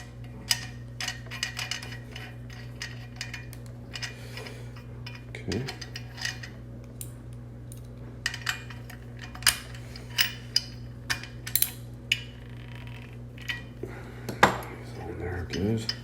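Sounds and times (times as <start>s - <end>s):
steady low hum: 0.0s - 16.0s
small metal parts clicking: 7.7s - 13.7s.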